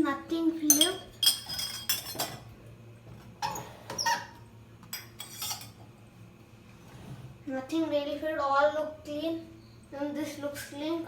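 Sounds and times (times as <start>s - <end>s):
dishes knocking and clinking: 0.7s - 2.5s.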